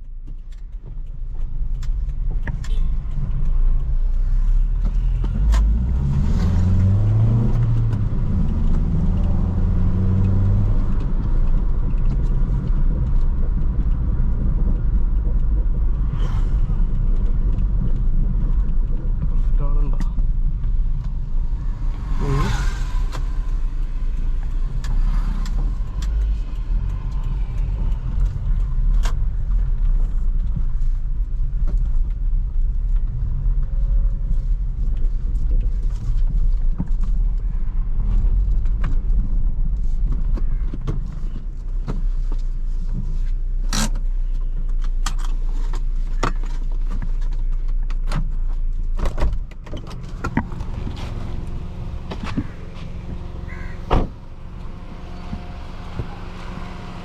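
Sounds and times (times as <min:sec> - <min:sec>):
car engine and road rumble: 0:00.0 - 0:57.0
brief whoosh: 0:21.5 - 0:25.8.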